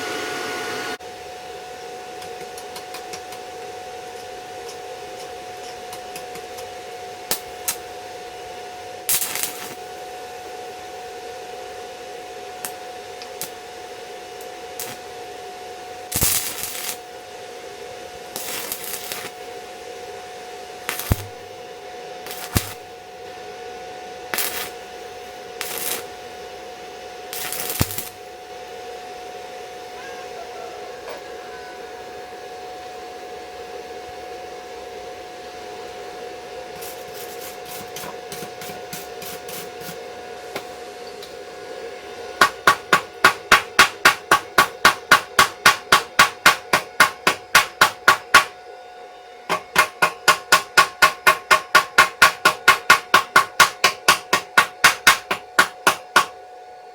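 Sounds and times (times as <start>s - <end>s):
steady hum: 0.0s - 56.9s
hammer blows on metal: 49.5s - 56.4s.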